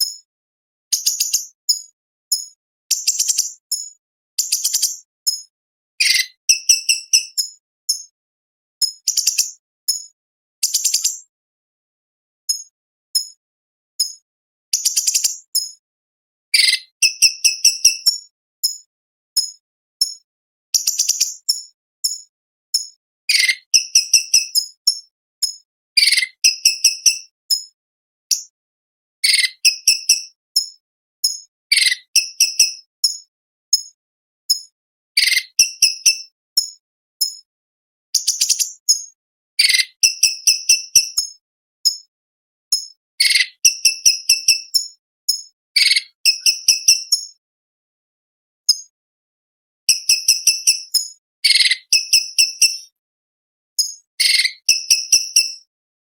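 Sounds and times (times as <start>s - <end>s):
bird singing high chip notes: 6.0s - 7.6s, 23.3s - 24.8s, 45.8s - 47.3s, 49.9s - 52.9s.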